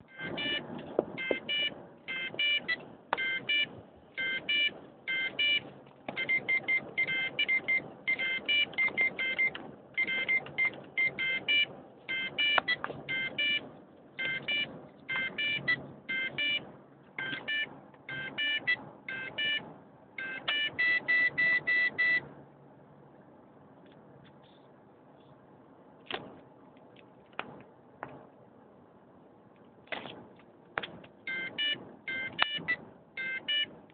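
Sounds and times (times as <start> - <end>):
electronic beeps: 0.0 - 22.3, 31.3 - 33.7.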